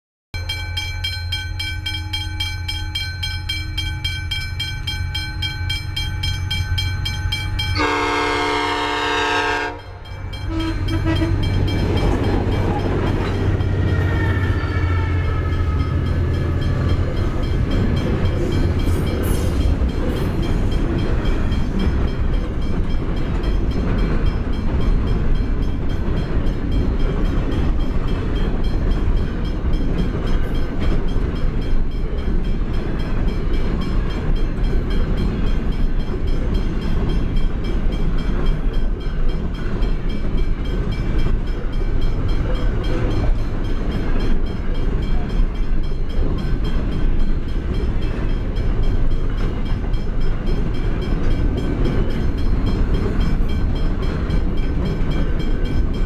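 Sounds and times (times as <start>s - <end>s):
locomotive engine hum: 0.4s - 56.0s
train wheels rumbling on rails: 0.4s - 56.0s
locomotive horn: 7.7s - 11.8s, 13.4s - 16.2s.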